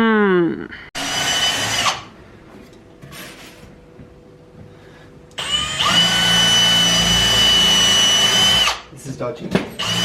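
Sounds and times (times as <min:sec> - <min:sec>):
power drill whining: 0:01.0 - 0:02.1, 0:05.4 - 0:08.8, 0:09.8 - 0:10.0.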